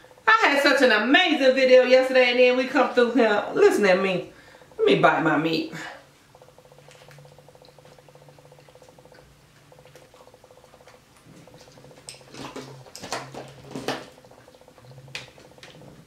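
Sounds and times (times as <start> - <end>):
low buzzing hum: 0.0 - 16.0
wet mouth clicks chewing: 6.3 - 16.0.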